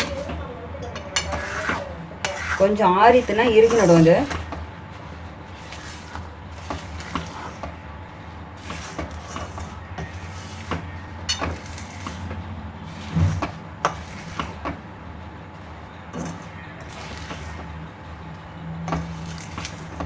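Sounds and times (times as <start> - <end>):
utensil scraping and knocking in pan: 1.0 - 4.6, 8.6 - 14.8, 16.1 - 17.8.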